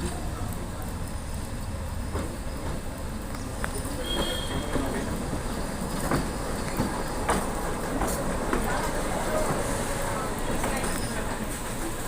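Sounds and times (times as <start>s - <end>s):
train rumbling: 0.0s - 12.0s
train wheels clacking: 3.8s - 9.8s
high squeal: 4.0s - 4.8s.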